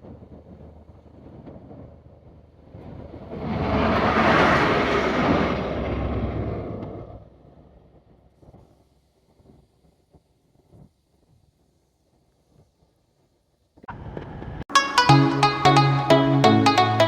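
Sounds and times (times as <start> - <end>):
vehicle passing by: 3.0 - 7.4.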